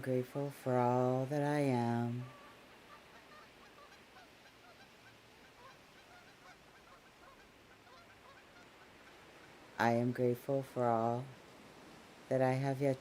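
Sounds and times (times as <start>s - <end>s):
soft steady hiss: 0.0s - 13.0s
geese honking: 2.2s - 9.6s.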